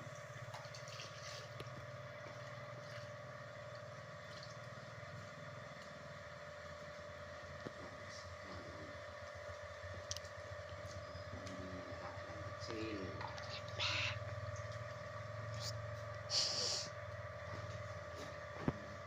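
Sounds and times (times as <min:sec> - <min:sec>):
low mechanical hum: 0:00.0 - 0:19.0
thin steady whine: 0:00.0 - 0:19.0.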